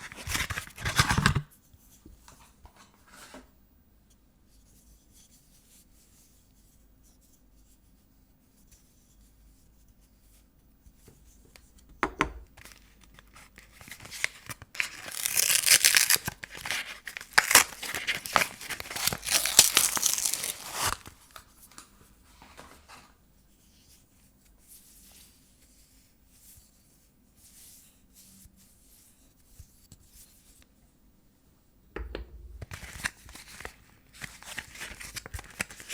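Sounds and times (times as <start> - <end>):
wrapper tearing and crinkling: 0.0 - 1.4, 12.6 - 21.4, 32.6 - 35.9.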